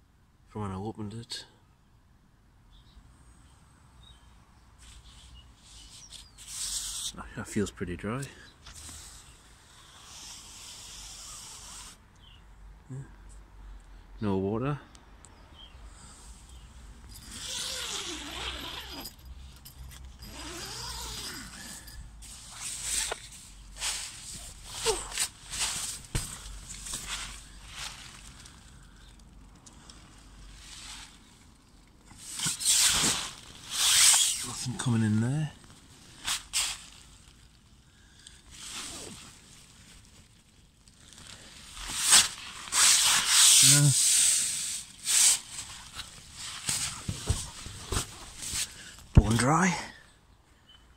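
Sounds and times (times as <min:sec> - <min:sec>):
sharp scrape: 0:04.8 - 0:07.2, 0:20.3 - 0:28.2, 0:32.2 - 0:34.6, 0:36.2 - 0:36.9, 0:41.8 - 0:48.8
tent fabric rustling: 0:16.3 - 0:19.3, 0:20.1 - 0:28.7, 0:30.0 - 0:31.4, 0:32.1 - 0:35.0, 0:35.9 - 0:37.4, 0:38.5 - 0:49.4.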